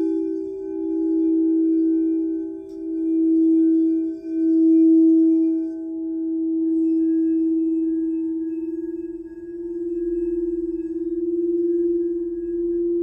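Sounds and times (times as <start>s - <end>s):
singing bowl low tone: 0.0s - 13.0s.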